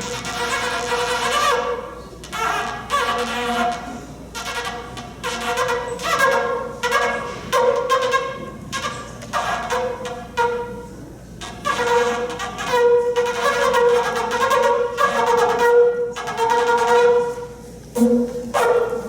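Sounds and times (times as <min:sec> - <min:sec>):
shofar blowing held notes: 0:00.0 - 0:19.0.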